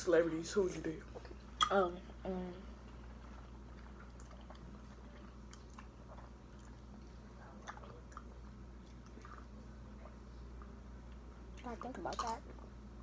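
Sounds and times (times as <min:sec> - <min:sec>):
low steady hum: 0:00.0 - 0:13.0
faint chewing: 0:02.8 - 0:12.7.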